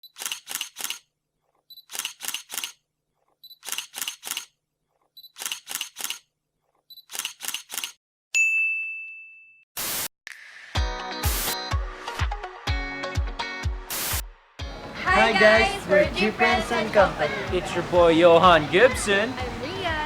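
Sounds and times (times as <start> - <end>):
camera shutter clicks: 0.1 - 1.0, 1.8 - 2.8, 3.6 - 4.5, 5.4 - 6.2, 7.0 - 8.0
bell-like ding: 8.4 - 9.6.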